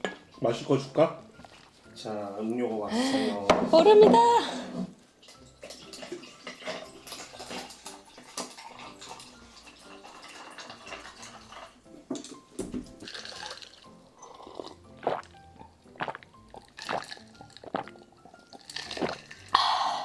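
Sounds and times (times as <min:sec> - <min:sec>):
background music: 0:00.0 - 0:20.0
liquid sloshing in glass: 0:05.2 - 0:15.2, 0:16.0 - 0:19.5.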